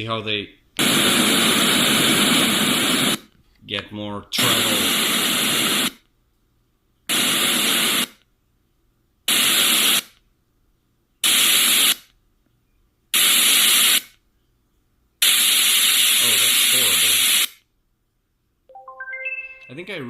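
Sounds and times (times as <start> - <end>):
white noise bursts from speaker: 0.8 - 3.3, 4.3 - 6.0, 15.2 - 17.6.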